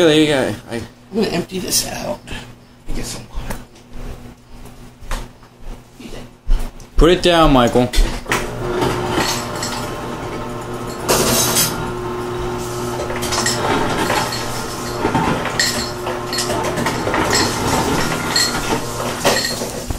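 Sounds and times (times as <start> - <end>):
dishes clinking: 8.6 - 12.2, 13.0 - 19.9.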